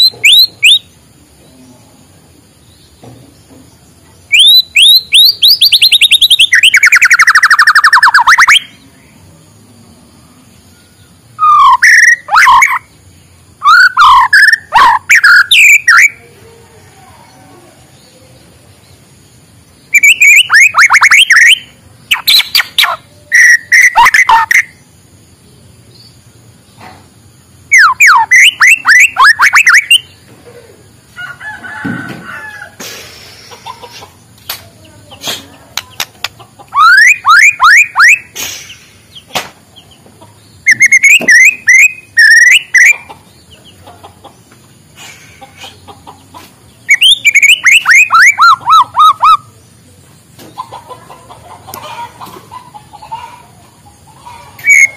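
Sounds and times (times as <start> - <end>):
songbird whistling rapidly: 0.0 - 0.9, 4.3 - 8.8, 11.4 - 12.9, 13.6 - 16.2, 19.9 - 24.8, 27.7 - 30.2, 36.7 - 39.2, 40.6 - 43.1, 46.8 - 49.5, 54.6 - 54.9.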